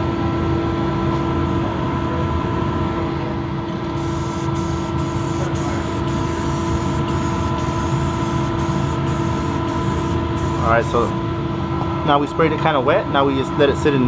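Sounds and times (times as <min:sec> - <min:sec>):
steady mechanical hum: 0:00.0 - 0:14.0
spray paint can hissing: 0:04.0 - 0:11.1.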